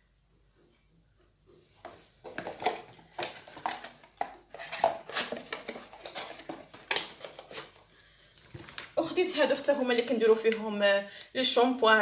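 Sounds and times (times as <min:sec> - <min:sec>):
household items clinking and tapping: 0:01.8 - 0:09.2.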